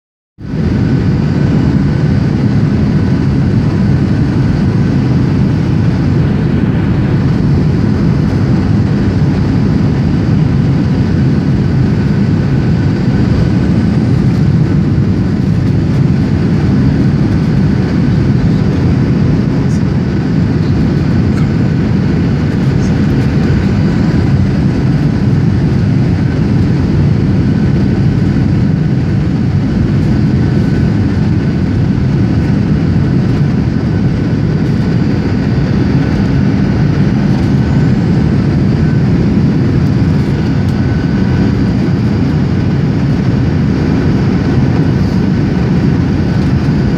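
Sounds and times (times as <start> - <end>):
jet engines rumbling: 0.4 - 46.9.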